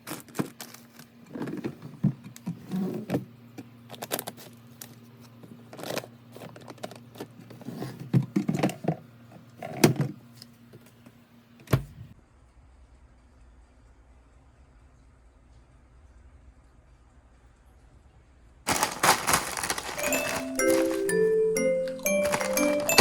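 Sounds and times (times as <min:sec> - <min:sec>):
objects clacking and knocking: 0:18.7 - 0:23.0.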